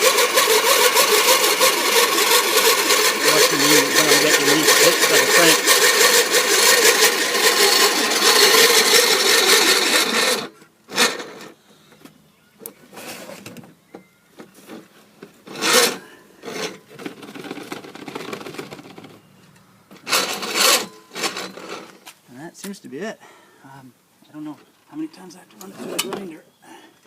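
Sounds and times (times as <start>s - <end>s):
grain mill grinding: 0.0s - 11.6s, 15.4s - 19.3s, 20.0s - 22.0s.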